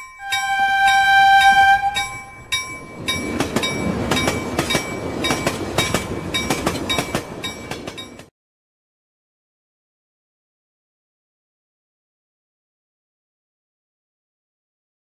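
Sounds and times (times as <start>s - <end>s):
train passing with wheel clatter: 0.0s - 8.3s
locomotive horn: 0.2s - 2.4s.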